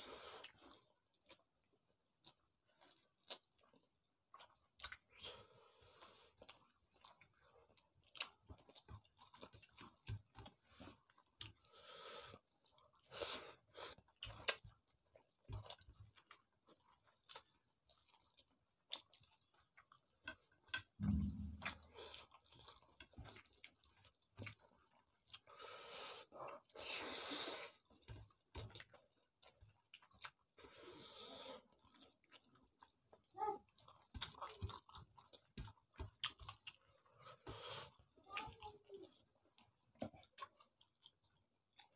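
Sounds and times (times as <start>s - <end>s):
chewing and wet mouth clicks: 2.2s - 5.3s, 6.2s - 11.7s, 13.8s - 21.6s, 27.6s - 30.7s, 31.7s - 38.6s, 39.5s - 41.9s
low thump: 21.0s - 21.9s.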